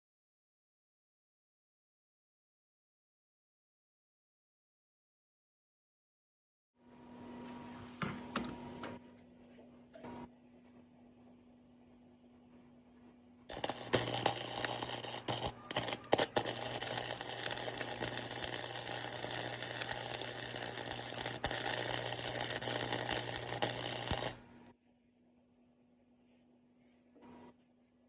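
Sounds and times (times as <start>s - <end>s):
hissing crackle of metalworking: 13.5s - 24.7s.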